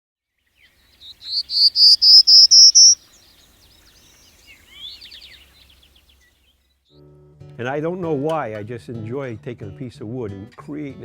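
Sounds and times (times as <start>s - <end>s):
songbird singing: 0.4s - 6.8s.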